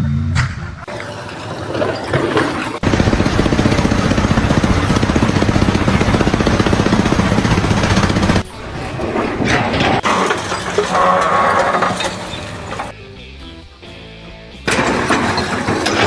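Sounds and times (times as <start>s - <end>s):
machine running with fast pulsing: 2.8s - 8.5s.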